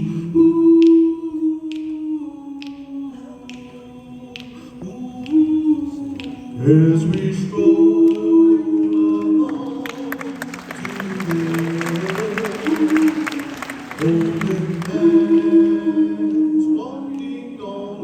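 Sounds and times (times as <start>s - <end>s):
a cappella vocal harmony: 0.0s - 18.0s
finger snaps: 0.6s - 7.4s
audience applause: 9.1s - 15.7s.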